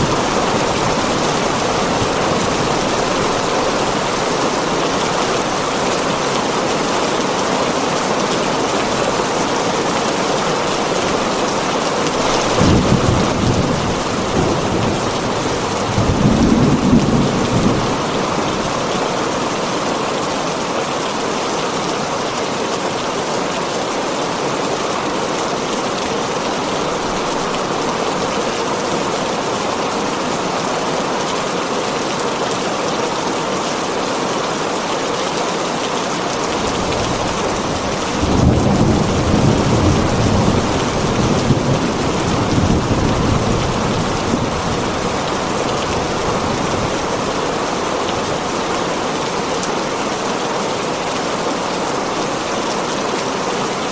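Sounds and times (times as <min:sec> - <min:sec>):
thunder rumbling: 0:00.0 - 0:07.1, 0:08.1 - 0:19.1, 0:36.5 - 0:48.7
heavy rain on a tin roof: 0:00.0 - 0:53.9.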